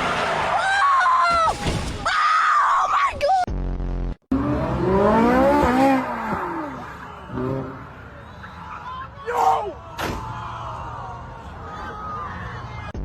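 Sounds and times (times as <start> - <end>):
car engine revving: 4.3 - 8.8
car tyres squealing: 4.4 - 12.9.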